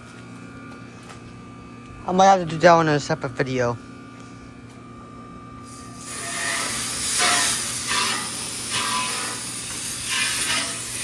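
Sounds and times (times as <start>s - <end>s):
hose spraying water onto metal coil: 5.7s - 11.0s.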